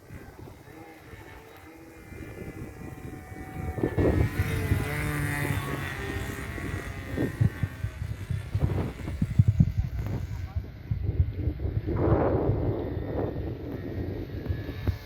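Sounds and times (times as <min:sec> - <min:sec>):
model airplane engine whining: 0:00.0 - 0:15.0.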